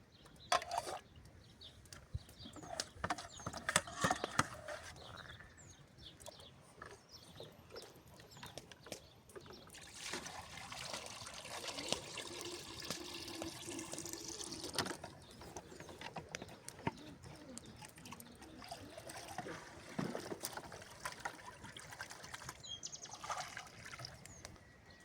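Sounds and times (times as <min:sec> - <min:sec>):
liquid trickling and splashing: 0:09.5 - 0:16.0, 0:17.6 - 0:24.6
small clicks and knocks: 0:14.7 - 0:18.3.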